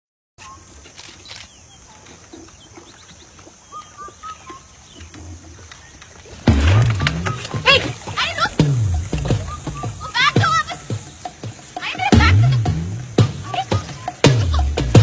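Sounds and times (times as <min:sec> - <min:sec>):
faint bird chirps: 0:00.4 - 0:06.4, 0:07.0 - 0:12.2.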